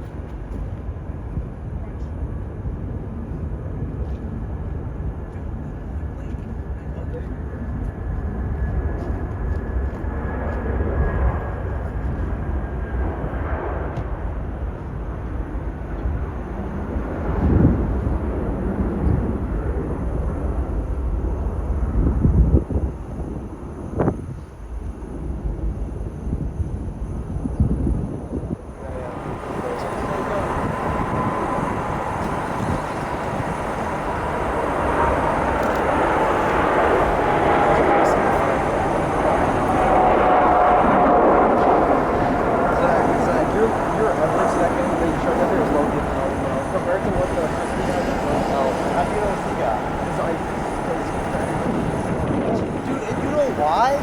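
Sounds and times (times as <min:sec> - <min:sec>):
jet engines rumbling: 0:00.0 - 0:54.0
faint high whine: 0:11.0 - 0:54.0.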